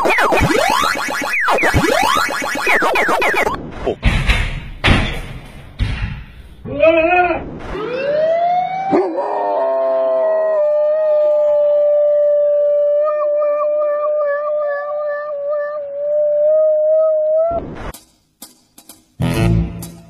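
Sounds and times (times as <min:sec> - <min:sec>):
dog howling: 0:08.9 - 0:17.6.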